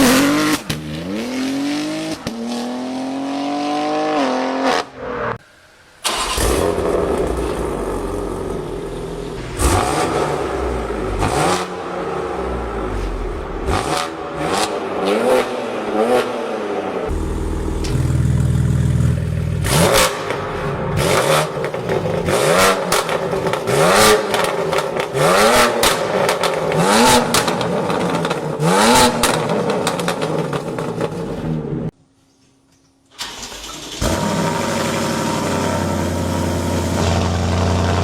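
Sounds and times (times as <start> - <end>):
car engine accelerating: 6.0 - 16.3, 17.1 - 31.2.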